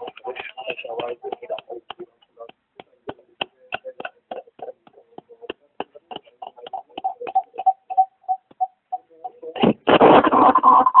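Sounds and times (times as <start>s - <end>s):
radio interference clicks: 0.0s - 11.0s
short beeps: 7.0s - 9.4s.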